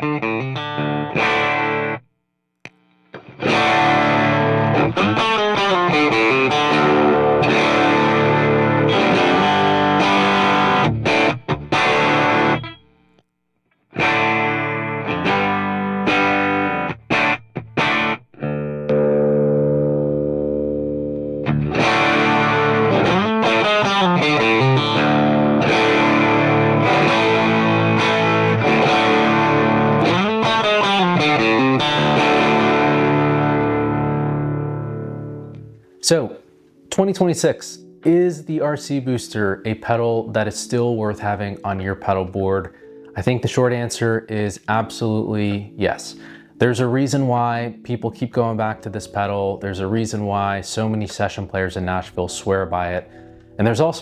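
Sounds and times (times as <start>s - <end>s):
overdriven electric guitar riff: 0.0s - 13.2s, 13.9s - 36.8s, 42.6s - 43.2s, 53.0s - 53.9s.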